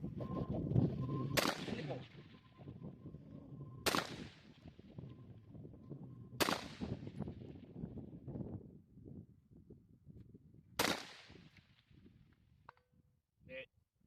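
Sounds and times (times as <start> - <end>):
wind rumbling on microphone: 0.0 - 13.5
gunshots with echo: 1.3 - 2.4, 3.8 - 4.7, 6.4 - 7.2, 10.8 - 11.4.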